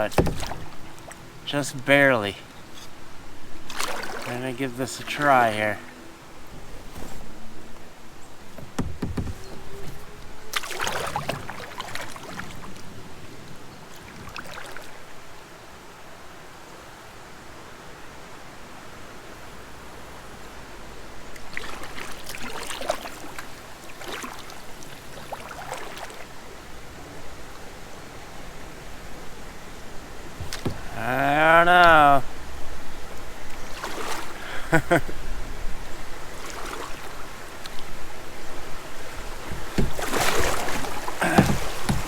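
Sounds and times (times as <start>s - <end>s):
paddle splashes and knocks: 0.0s - 15.2s, 21.3s - 26.4s, 30.1s - 42.0s
creek water rushing: 0.0s - 42.0s.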